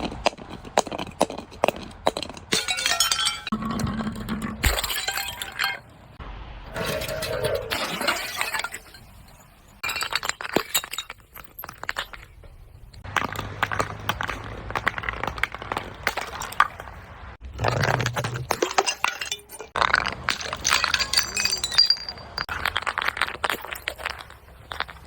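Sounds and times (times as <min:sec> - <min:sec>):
broken glass crunching: 0:02.5 - 0:05.9, 0:06.8 - 0:25.0.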